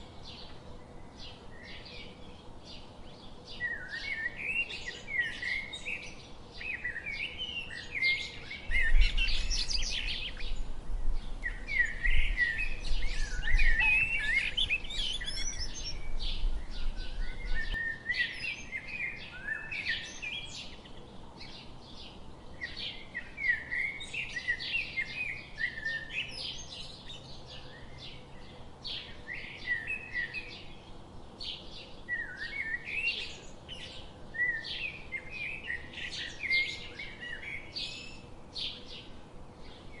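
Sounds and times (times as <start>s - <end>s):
songbirds chirping: 0.0s - 40.0s.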